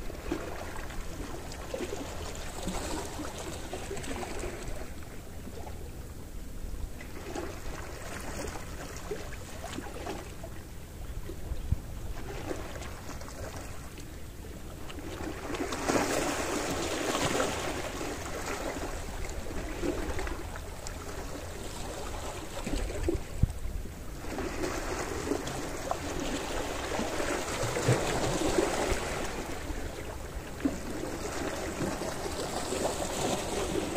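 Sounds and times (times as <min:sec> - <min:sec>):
low rumble of surf: 0:00.0 - 0:33.9
wind on microphone: 0:11.0 - 0:12.5, 0:22.5 - 0:24.6.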